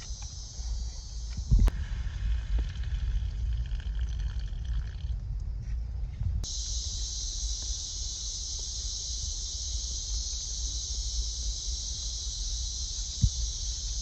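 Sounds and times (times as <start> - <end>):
insect chorus buzzing: 0.0 - 5.1, 6.4 - 14.0
low rumble: 0.0 - 10.5.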